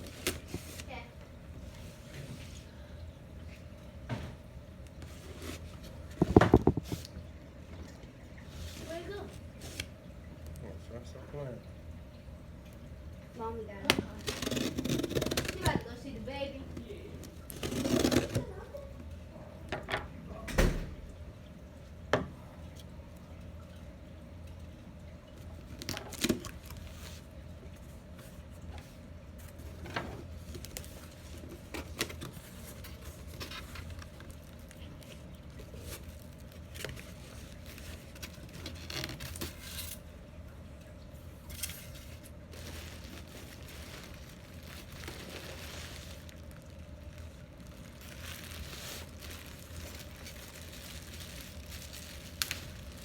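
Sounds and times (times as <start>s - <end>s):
rustling from handling: 41.5s - 53.0s.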